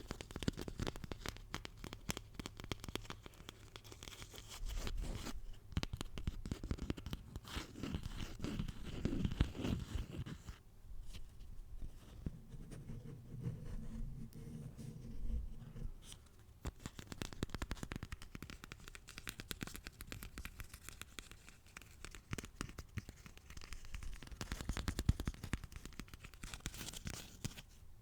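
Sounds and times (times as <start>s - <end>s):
crackling and scratching: 12.1s - 27.8s.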